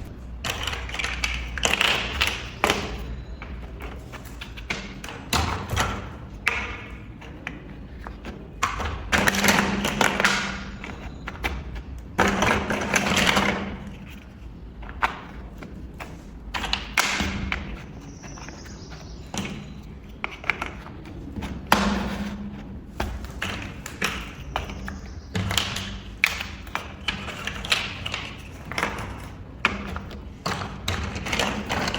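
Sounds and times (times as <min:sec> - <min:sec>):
plastic bricks rattling: 0:00.0 - 0:11.5, 0:19.5 - 0:31.9
plastic bricks clicking and knocking: 0:00.3 - 0:18.7, 0:19.4 - 0:31.9.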